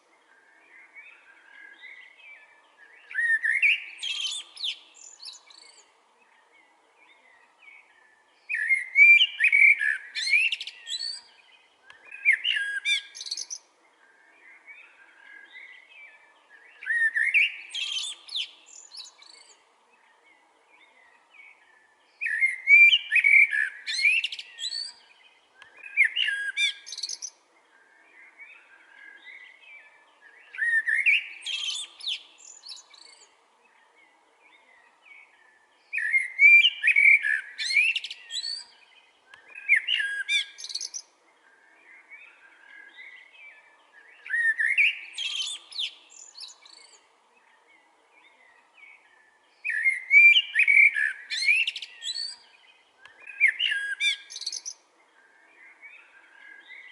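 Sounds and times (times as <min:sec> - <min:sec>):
blackbird singing: 0:00.0 - 0:56.9.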